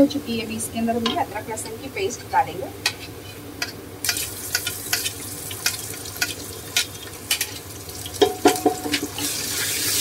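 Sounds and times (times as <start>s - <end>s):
onions frying in hot oil: 3.9s - 10.0s
spatula knocking against pot: 8.2s - 9.1s.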